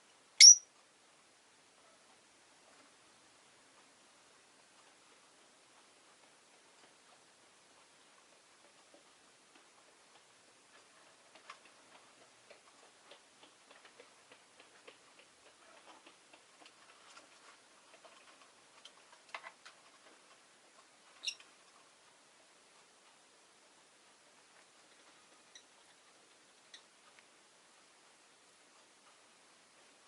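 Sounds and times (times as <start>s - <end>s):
short high bird chirp: 0.4s - 0.6s.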